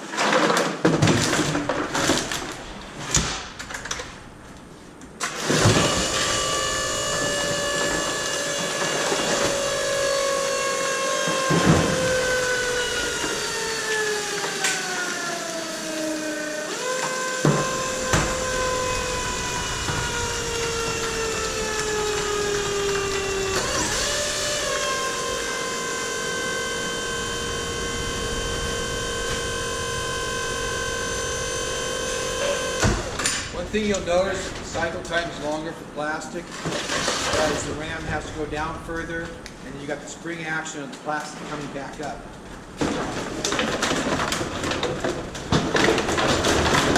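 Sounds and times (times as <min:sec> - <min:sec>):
hydraulic pump motor whining: 0:05.2 - 0:35.7
plastic bottles cracking: 0:42.6 - 0:46.9.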